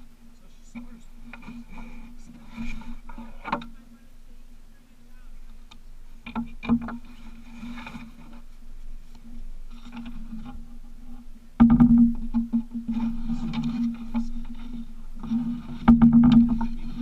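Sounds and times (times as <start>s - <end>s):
outboard motor running: 0.0s - 17.0s
hull knocks and thumps: 6.2s - 8.5s, 9.2s - 17.0s.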